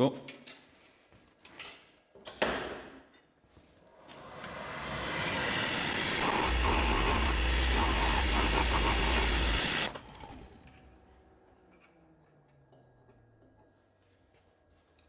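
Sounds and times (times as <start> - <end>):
lathe motor winding down: 4.0 - 11.0
wood lathe cutting wood: 4.1 - 10.5
shavings hissing off wood: 4.5 - 9.9.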